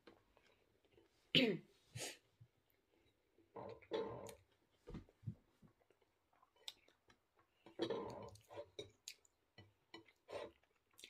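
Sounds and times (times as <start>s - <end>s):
person chewing food: 2.7s - 4.8s, 5.7s - 11.0s.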